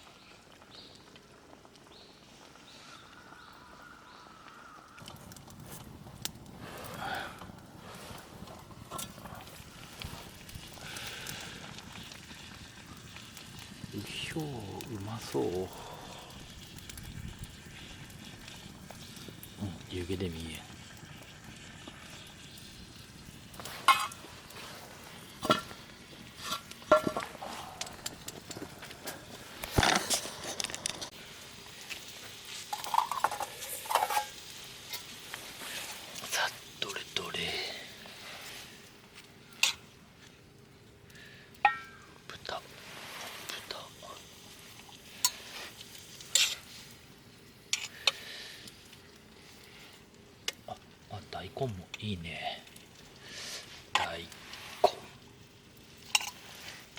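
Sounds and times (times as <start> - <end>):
cooking pot hissing: 1.4 - 39.9, 41.0 - 50.4, 53.0 - 56.9
utensils clinking on metal pot: 23.8 - 24.2, 32.7 - 34.4, 41.6 - 42.1, 56.1 - 56.4
utensil clinking against pot: 41.7 - 42.0.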